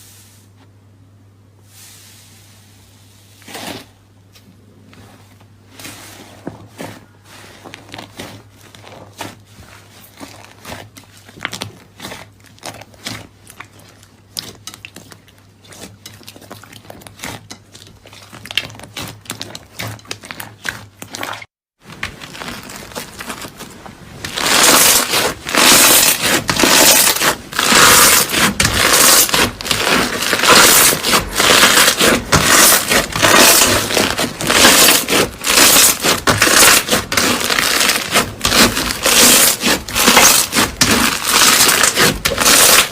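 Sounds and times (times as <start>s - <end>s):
slime crackling and popping: 10.1s - 42.9s.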